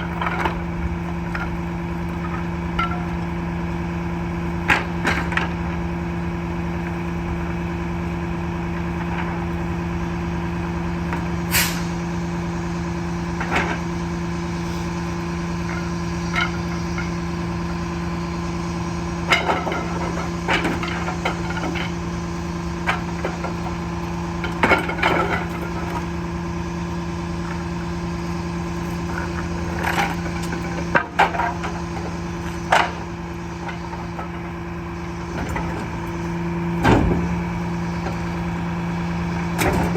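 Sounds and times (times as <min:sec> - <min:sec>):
garbage truck humming: 0:00.0 - 0:39.9
clanks and knocks: 0:28.9 - 0:34.5, 0:36.8 - 0:37.4.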